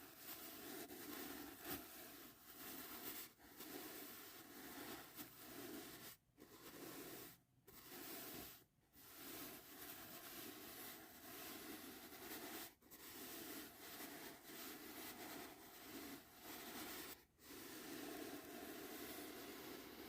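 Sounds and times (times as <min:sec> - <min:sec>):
brush strokes swishing: 0:00.0 - 0:20.0.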